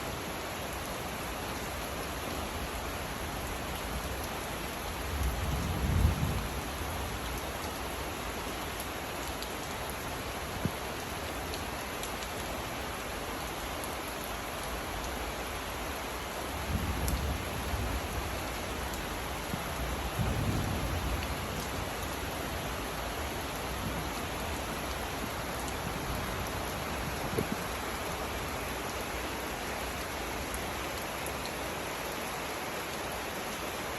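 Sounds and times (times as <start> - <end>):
steady rain falling: 0.0 - 33.9
low rumble of thunder: 4.9 - 7.7, 16.6 - 28.5.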